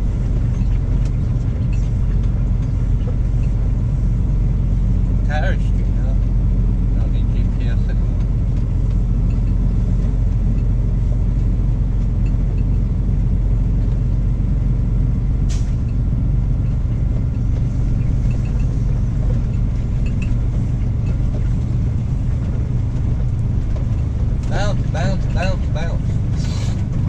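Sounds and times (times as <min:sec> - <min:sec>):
truck engine rumbling: 0:00.0 - 0:27.0.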